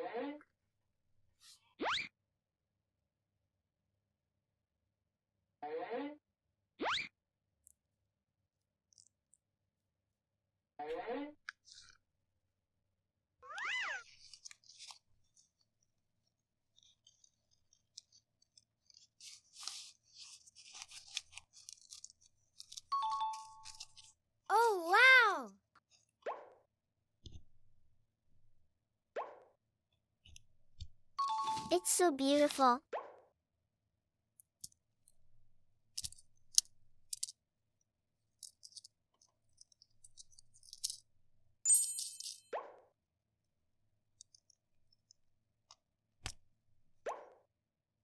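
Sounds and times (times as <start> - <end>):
small plastic clicks: 36.0 - 37.3
plastic toy pieces clicking: 37.1 - 37.3
bright ringing clink: 41.7 - 42.4.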